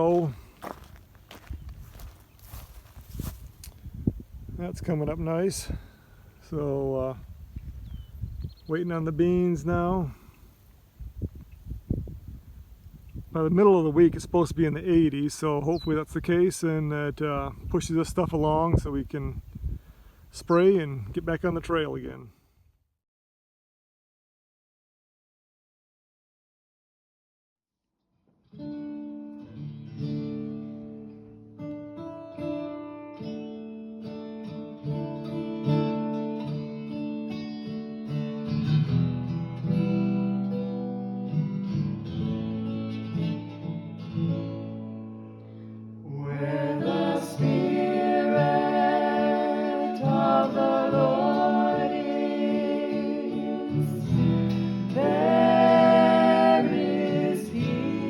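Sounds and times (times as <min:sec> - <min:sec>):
acoustic guitar plucking: 0:28.4 - 0:58.0
person singing: 0:46.1 - 0:58.0.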